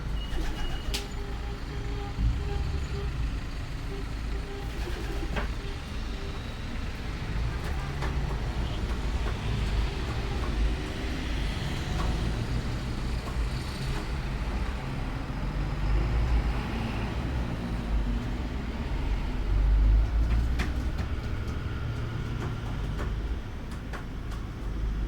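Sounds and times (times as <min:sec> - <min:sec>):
low outdoor rumble: 0:01.0 - 0:04.7.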